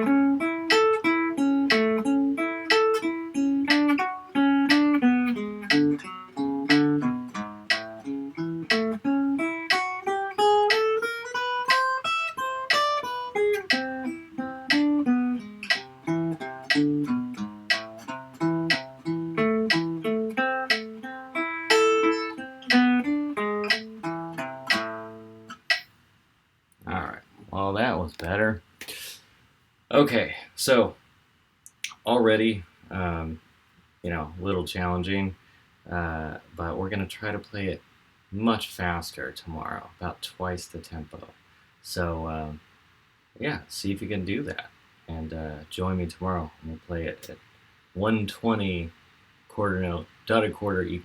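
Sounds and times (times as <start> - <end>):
guitar picking slow melody: 0.0 - 25.8.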